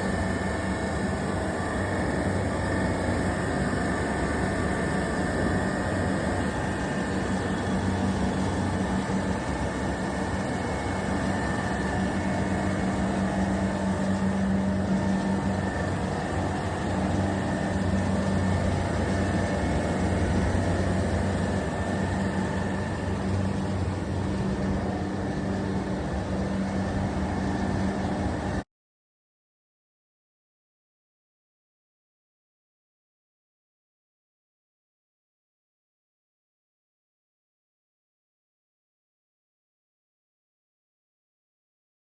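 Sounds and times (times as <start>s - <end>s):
chiller low hum: 0.0s - 28.6s
faint high whine: 0.0s - 28.6s
fan noise: 0.0s - 28.6s.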